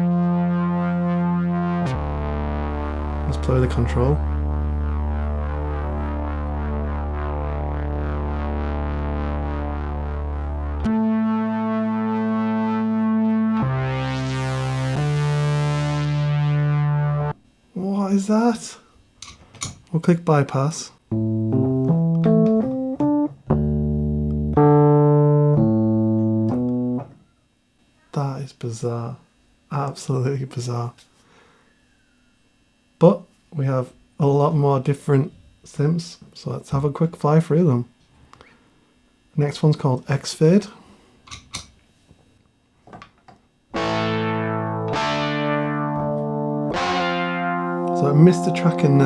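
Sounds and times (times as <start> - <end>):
single-note synth tone: 0.0 - 17.4, 43.8 - 49.0.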